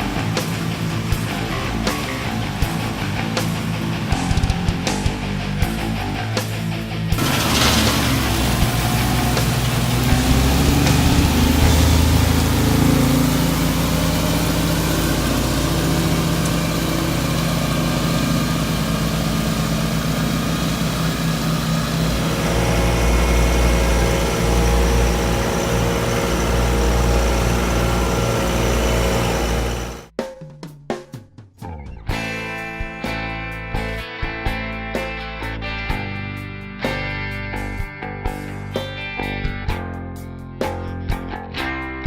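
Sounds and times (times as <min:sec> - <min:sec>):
heavy equipment engine rumbling: 0:07.2 - 0:30.1.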